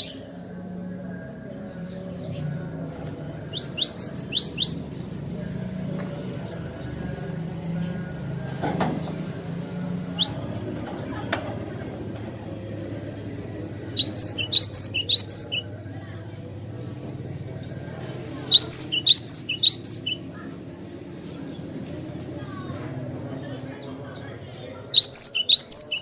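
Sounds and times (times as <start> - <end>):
bird singing sharp rising notes: 3.5 - 5.2, 9.0 - 10.6, 13.9 - 15.6, 18.5 - 20.2, 24.9 - 26.0.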